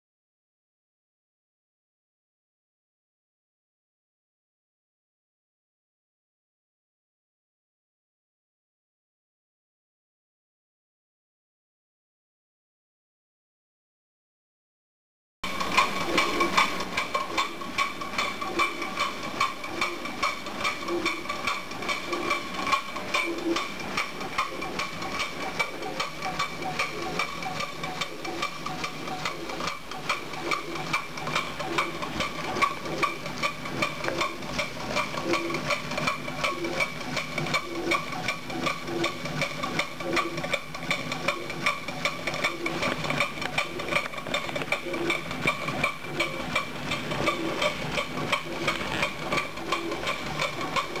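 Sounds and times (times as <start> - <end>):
model steam engine clattering: 15.4 - 51.0.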